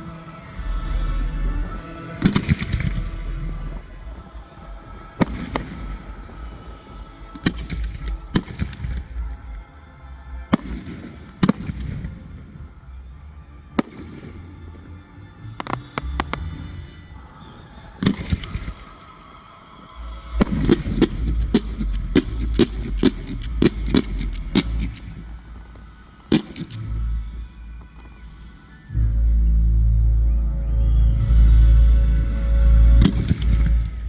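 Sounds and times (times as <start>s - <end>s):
music: 0.0s - 34.0s
fireworks bangs: 2.2s - 3.2s, 5.1s - 9.6s, 10.5s - 12.6s, 13.8s - 16.9s, 18.0s - 19.2s, 20.3s - 29.5s, 33.0s - 34.0s.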